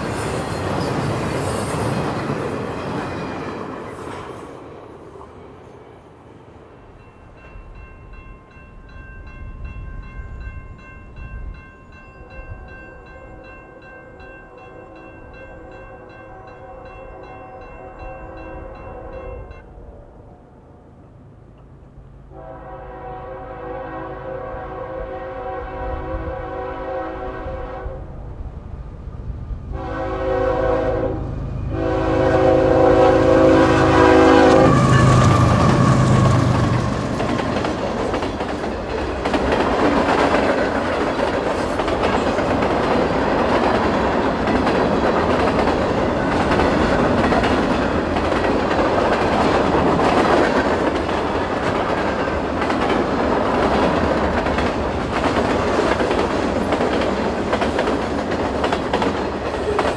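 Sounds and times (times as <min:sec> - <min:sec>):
freight cars clickety-clack on rails: 0:00.0 - 0:05.6, 0:29.1 - 0:59.9
train air horn blasts: 0:22.3 - 0:28.2, 0:29.7 - 0:36.9.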